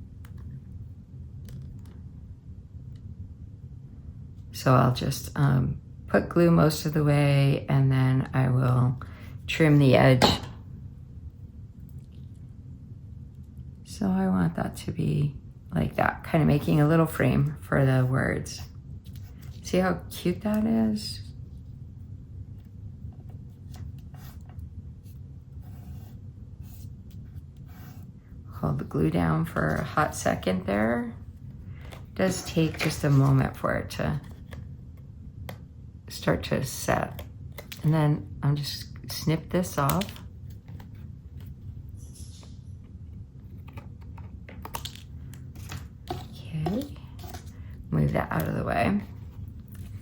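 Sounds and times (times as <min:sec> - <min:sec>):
paper rustling: 0:31.8 - 0:33.6.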